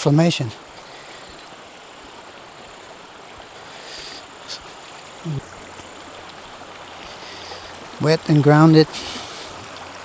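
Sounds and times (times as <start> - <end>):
creek water rushing: 0.0 - 10.0
low voice: 5.2 - 5.5.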